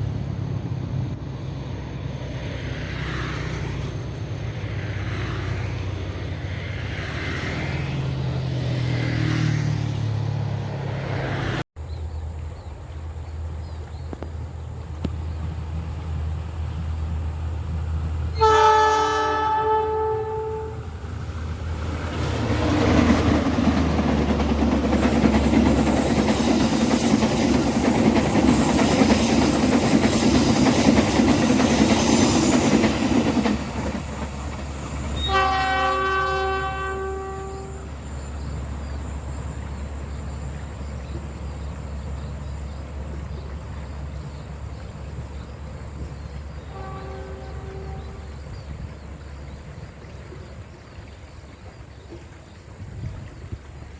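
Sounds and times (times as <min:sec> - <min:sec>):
train rail and wheel noise: 0:00.0 - 0:53.9
diesel locomotive horn: 0:18.3 - 0:21.2, 0:35.2 - 0:38.2, 0:46.6 - 0:48.6.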